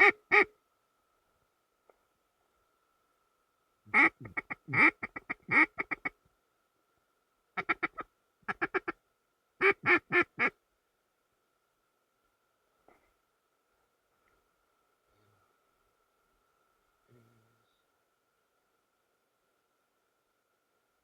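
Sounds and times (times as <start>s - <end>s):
duck call quacking: 0.0s - 0.5s, 3.9s - 6.1s, 7.6s - 9.0s, 9.6s - 10.6s.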